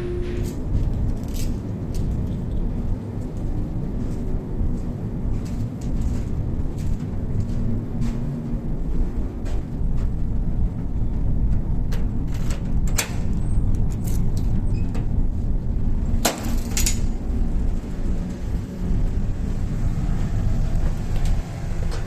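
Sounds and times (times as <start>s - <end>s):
vehicle rumble: 0.0s - 22.0s.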